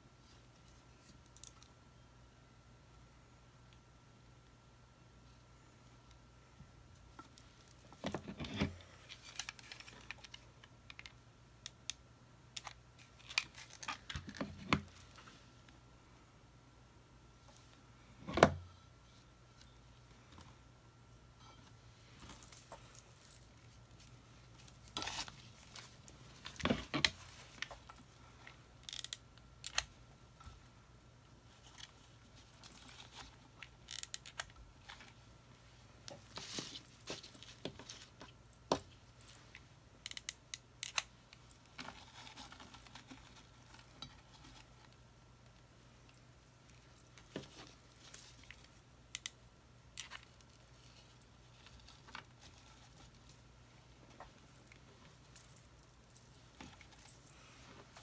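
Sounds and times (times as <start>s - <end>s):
craft materials rustling and crinkling: 7.0s - 11.1s, 13.0s - 15.7s, 21.5s - 29.1s, 31.4s - 39.7s, 41.3s - 48.8s, 50.0s - 58.0s.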